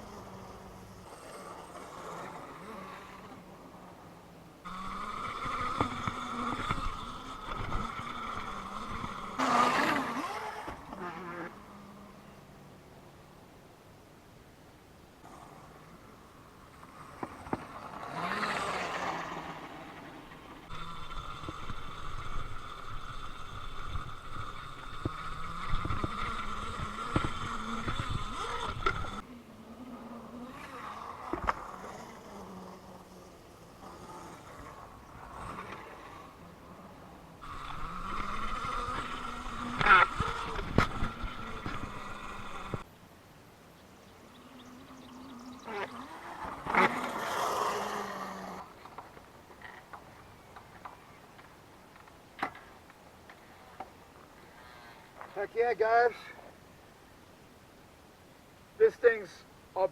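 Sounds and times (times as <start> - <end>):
electric motor whining: 4.6 - 12.1, 16.7 - 29.3, 29.9 - 42.9, 45.3 - 51.0.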